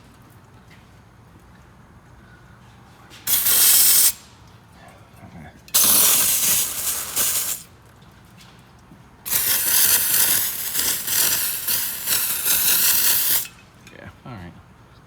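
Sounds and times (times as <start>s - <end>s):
aerosol can spraying: 3.3s - 4.2s, 5.8s - 7.7s, 9.3s - 13.5s.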